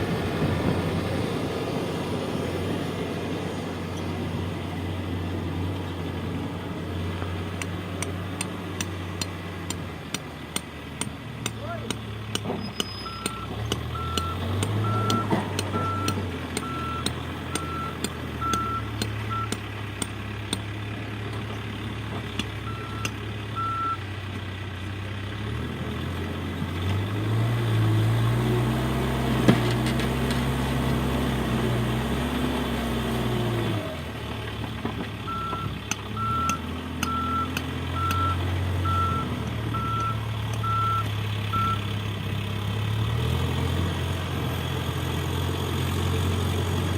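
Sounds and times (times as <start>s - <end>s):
earthmoving machine engine: 0.0s - 23.9s
reversing alarm beeping: 12.7s - 19.6s, 22.6s - 24.0s, 35.3s - 41.8s.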